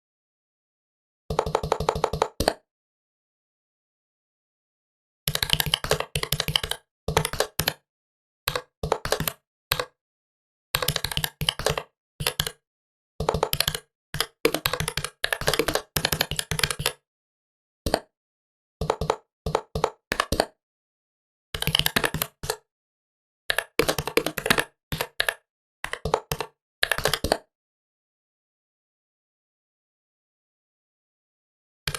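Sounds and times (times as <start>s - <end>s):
typing on laptop keyboard: 1.3s - 2.6s, 5.3s - 7.8s, 8.5s - 10.0s, 10.8s - 12.6s, 13.2s - 17.0s, 18.8s - 20.6s, 21.6s - 22.6s, 23.5s - 27.5s.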